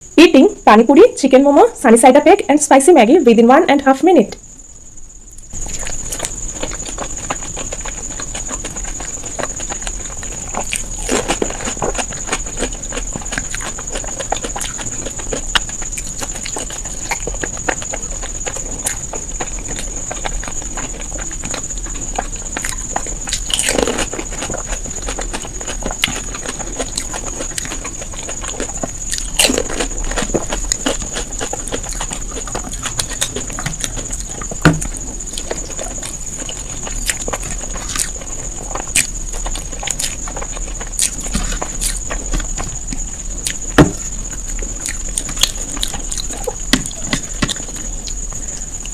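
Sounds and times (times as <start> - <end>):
steady high-pitched whine: 0.0 - 48.9
person chewing and biting: 5.4 - 48.9.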